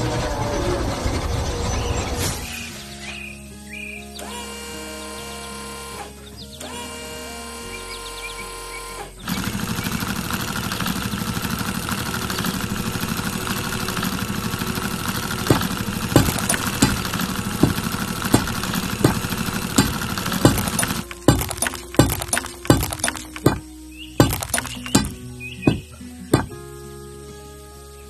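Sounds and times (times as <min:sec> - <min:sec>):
motor engine pulsing: 0:04.2 - 0:26.6
sharp knocks: 0:15.5 - 0:23.6, 0:24.2 - 0:26.6.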